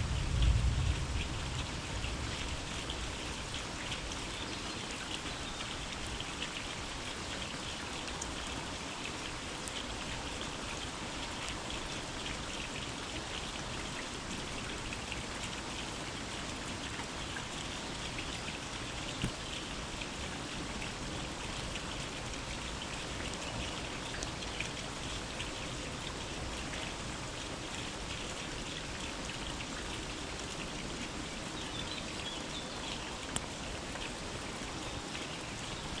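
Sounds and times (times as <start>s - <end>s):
single raindrops: 0.0s - 3.0s, 33.0s - 36.0s
steady rain in a forest: 0.0s - 36.0s.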